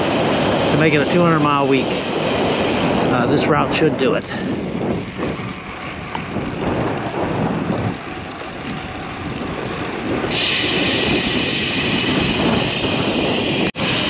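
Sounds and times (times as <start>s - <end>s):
bicycle road noise: 0.0s - 14.0s
wind buffeting microphone: 0.0s - 14.0s
loud high hiss: 10.3s - 14.0s.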